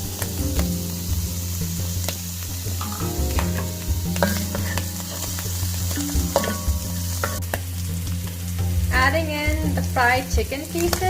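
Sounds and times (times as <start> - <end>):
mushrooms sizzling in hot oil: 0.0 - 11.0
utensil clicking against pan: 2.8 - 8.4.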